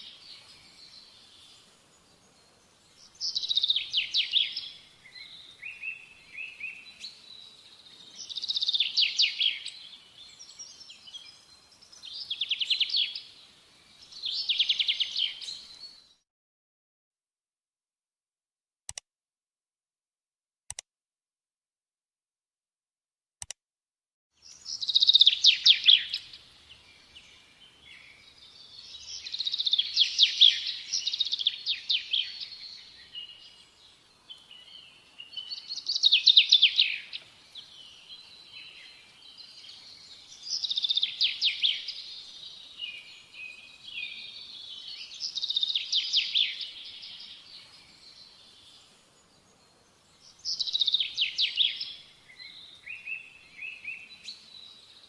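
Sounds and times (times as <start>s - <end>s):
songbird trilling: 24.5s - 26.4s, 35.2s - 37.7s.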